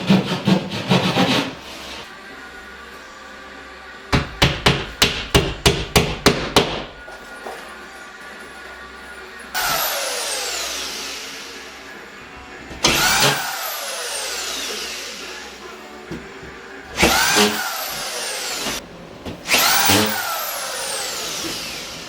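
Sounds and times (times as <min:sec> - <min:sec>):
power drill whining: 0:09.6 - 0:11.8, 0:12.8 - 0:15.6, 0:17.0 - 0:18.8, 0:19.5 - 0:22.0.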